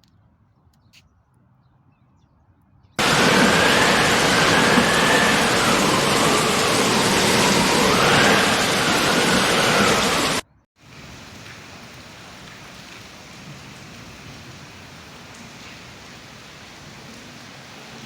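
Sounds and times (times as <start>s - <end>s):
faint wavering whine: 3.0s - 10.4s
heavy rain pouring: 3.0s - 18.0s.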